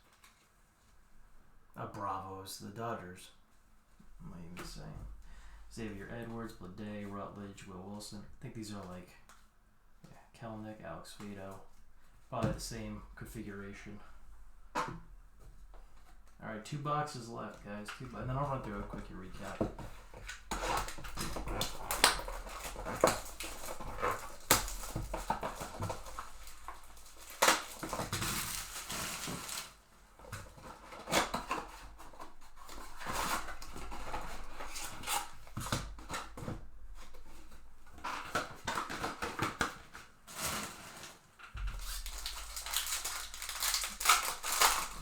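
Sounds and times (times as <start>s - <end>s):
foil packs tearing and crinkling: 17.9s - 45.0s.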